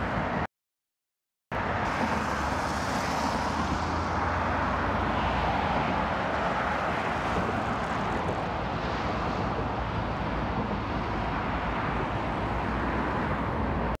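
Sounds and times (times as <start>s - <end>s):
train running noise: 1.8s - 3.9s, 7.2s - 12.2s.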